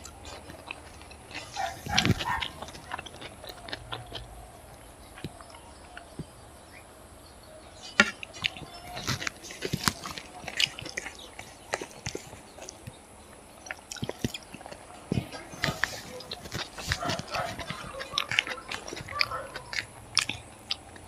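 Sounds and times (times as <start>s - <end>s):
lip smacks: 0.0s - 6.3s, 8.0s - 13.0s, 13.6s - 21.0s
chewing with wet clicks: 0.0s - 6.4s, 7.8s - 21.0s.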